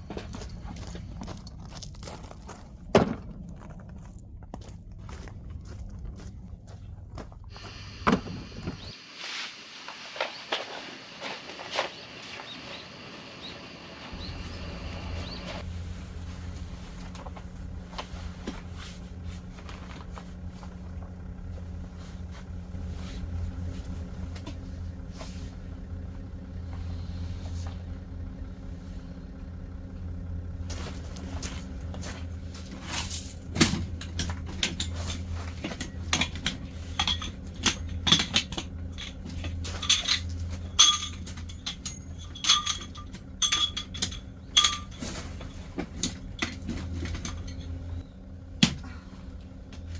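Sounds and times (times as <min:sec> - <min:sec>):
steady low hum: 0:00.0 - 0:09.0, 0:09.8 - 0:49.9
metal cookware clinking: 0:35.9 - 0:45.2.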